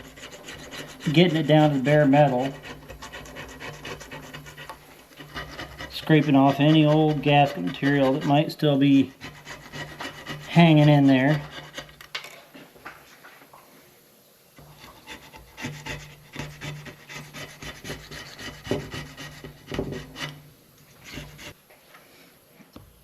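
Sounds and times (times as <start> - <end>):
razor blade scraping metal: 0.0 - 8.5, 9.1 - 12.0, 14.8 - 20.4.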